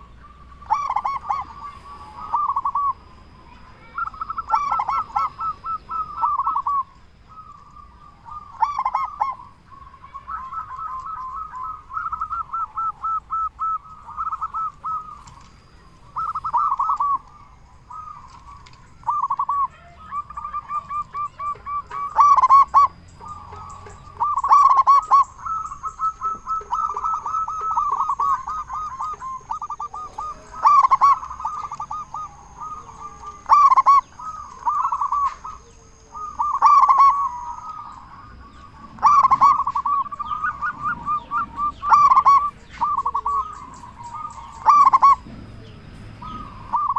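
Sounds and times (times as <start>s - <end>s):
doves cooing: 0.0s - 46.9s.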